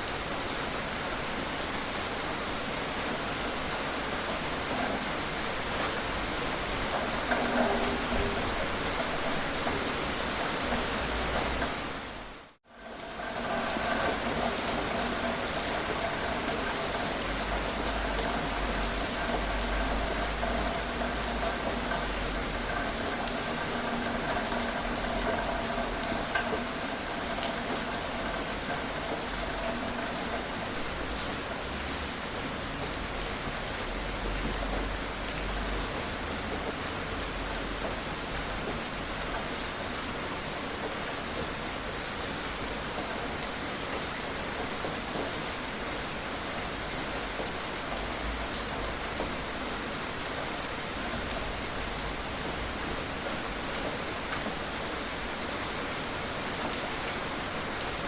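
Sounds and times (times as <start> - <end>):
gentle rain falling: 0.0 - 58.0.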